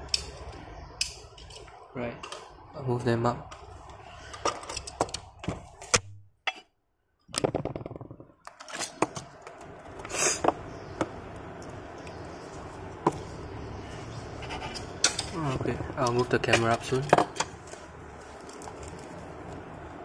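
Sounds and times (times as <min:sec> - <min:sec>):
toy cars and packaging handled: 0:16.8 - 0:19.8.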